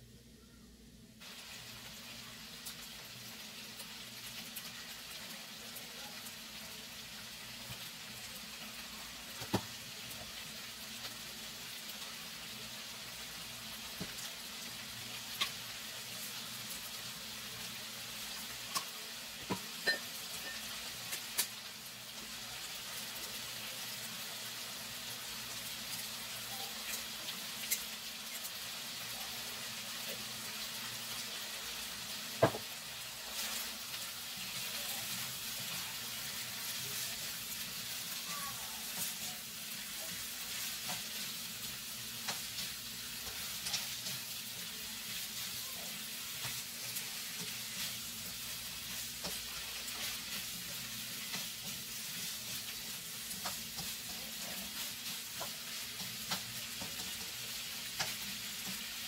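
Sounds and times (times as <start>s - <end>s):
food sizzling in a frying pan: 1.2s - 59.0s.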